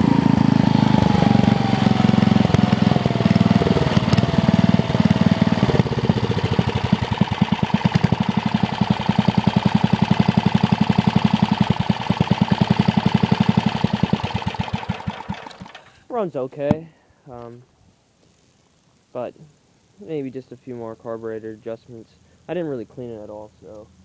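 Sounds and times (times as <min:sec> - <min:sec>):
small engine running in slow pulses: 0:00.0 - 0:16.0.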